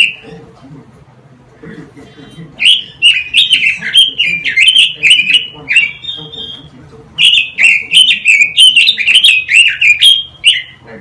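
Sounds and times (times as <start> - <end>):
songbird singing whistled notes: 2.6 - 10.8.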